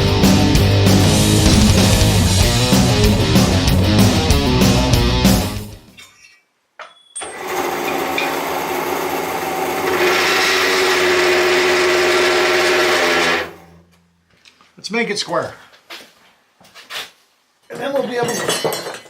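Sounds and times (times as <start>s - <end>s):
power tool motor hum: 7.3s - 13.8s.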